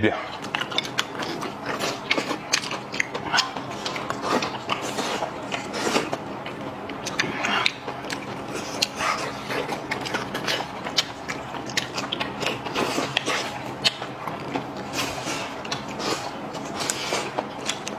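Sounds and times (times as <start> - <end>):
chewing crunchy food: 0.2 - 17.9.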